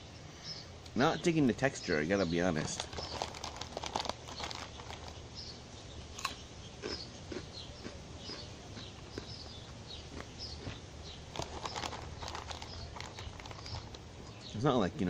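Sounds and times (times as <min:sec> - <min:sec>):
chewing crunchy snacks: 0:02.6 - 0:05.2, 0:06.1 - 0:14.6.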